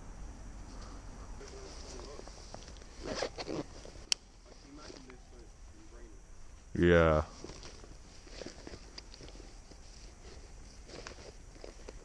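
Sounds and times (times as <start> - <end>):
low steady rumble: 0.0 - 12.0
footsteps on rough ground: 7.2 - 12.0.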